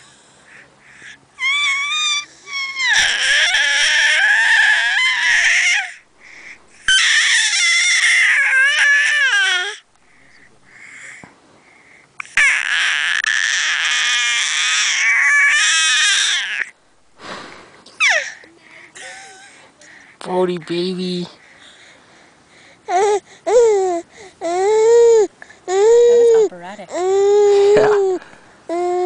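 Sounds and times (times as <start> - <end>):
baby squealing: 1.4 - 6.0, 6.8 - 9.8, 12.2 - 16.7, 18.0 - 18.4.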